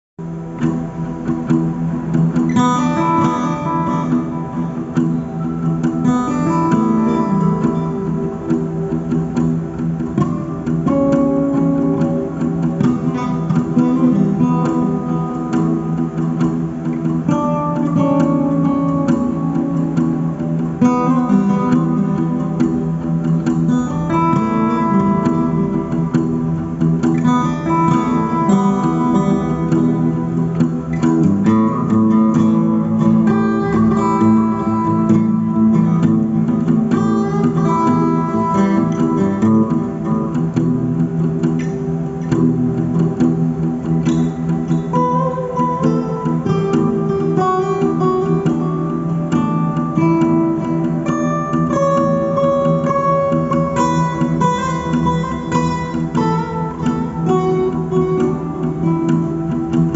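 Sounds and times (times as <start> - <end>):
guitar melody: 0.2 - 59.9.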